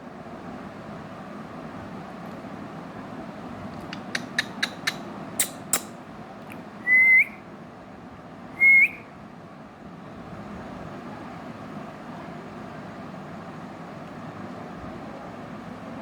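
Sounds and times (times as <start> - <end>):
parrot clicks and chirps: 3.8 - 6.6
parrot loud short whistles: 6.8 - 7.4, 8.6 - 9.1.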